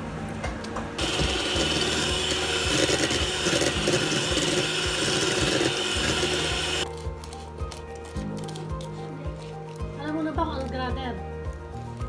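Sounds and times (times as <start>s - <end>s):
electric mixer whirring: 0.8s - 6.8s.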